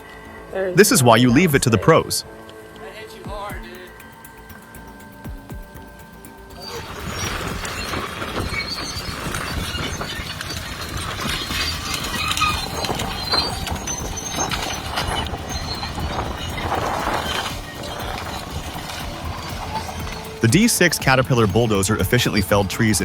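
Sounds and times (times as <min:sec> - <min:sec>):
bulldozer clattering: 0:06.5 - 0:23.0.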